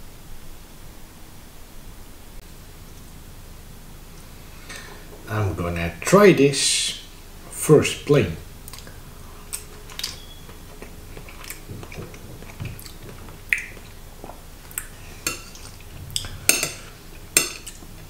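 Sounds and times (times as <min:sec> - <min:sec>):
person chewing: 0:08.6 - 0:18.0
mouth clicks: 0:12.8 - 0:14.0.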